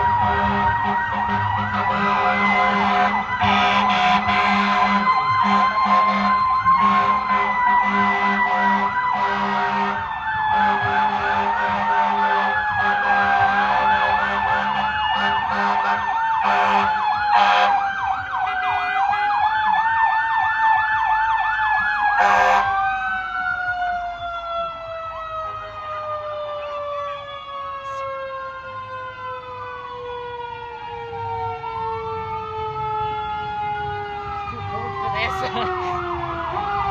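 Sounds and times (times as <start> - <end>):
electronic siren yelp: 0.0 - 36.9
mechanical siren wail: 0.0 - 36.9
air horn blasts: 0.2 - 17.7, 22.2 - 22.7.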